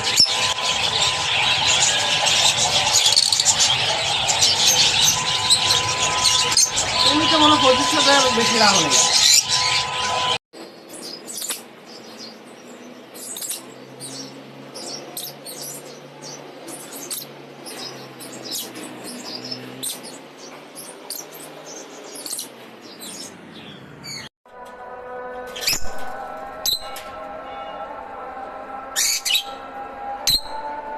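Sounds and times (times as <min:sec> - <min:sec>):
steady tone: 0:00.0 - 0:10.4
lovebirds chirping: 0:00.0 - 0:24.3.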